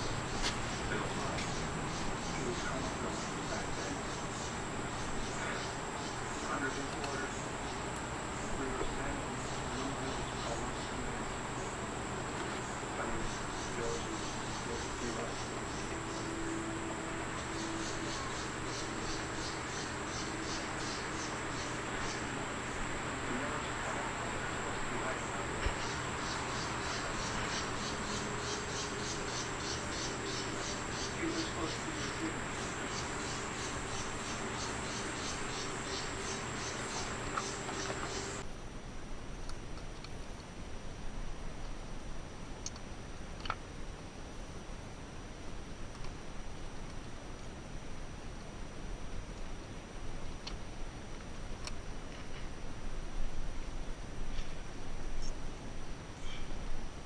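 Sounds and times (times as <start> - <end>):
crickets chirping: 0.0 - 38.4
low background noise: 0.0 - 57.0.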